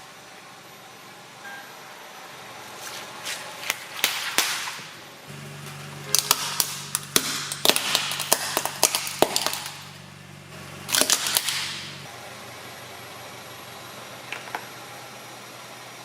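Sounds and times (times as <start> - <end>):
low steady hum: 0.0 - 16.0
brittle objects cracking under tyre: 5.7 - 10.1, 10.9 - 12.0.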